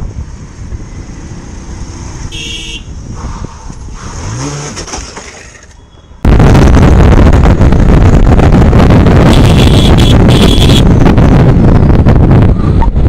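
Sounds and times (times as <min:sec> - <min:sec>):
road traffic noise: 0:00.0 - 0:13.0
car horn toot: 0:02.3 - 0:02.9, 0:09.3 - 0:10.9
engine revving: 0:04.0 - 0:05.2
wind buffeting microphone: 0:06.2 - 0:13.0.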